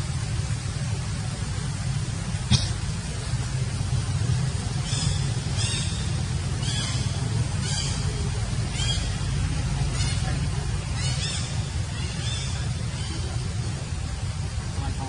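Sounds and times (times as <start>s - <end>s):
steady low rumble: 0.0s - 15.0s
high-pitched monkey calls: 4.8s - 13.5s.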